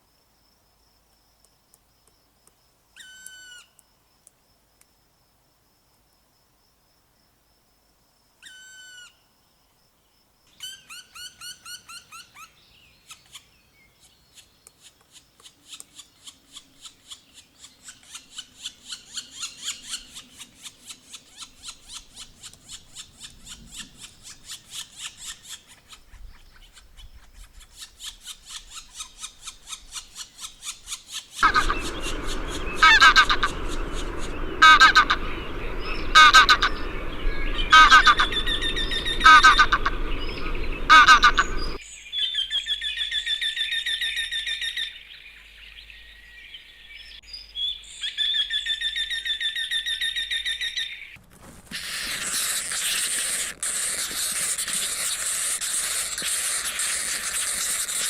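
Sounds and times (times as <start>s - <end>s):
high fast bird trill: 28.0s - 41.8s
bird ticking trill: 31.4s - 41.8s
noisy background: 31.4s - 41.8s
repeated bird call: 31.4s - 41.8s.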